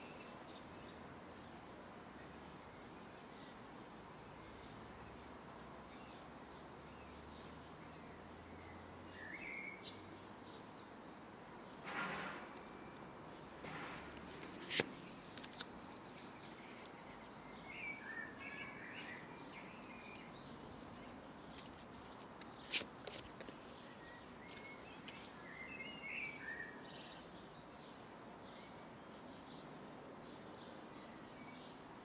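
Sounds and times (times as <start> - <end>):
wind: 0.0 - 32.0
birds chirping: 12.5 - 31.9.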